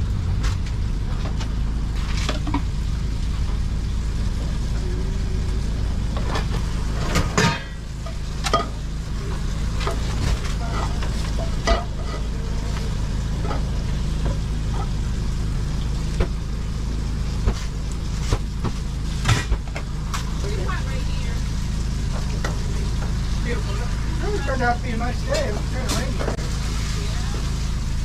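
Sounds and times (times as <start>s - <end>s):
food frying and sizzling: 0.0s - 28.0s
steady low hum: 0.0s - 28.0s
metal utensils clacking on pans: 6.3s - 8.9s, 9.8s - 12.4s.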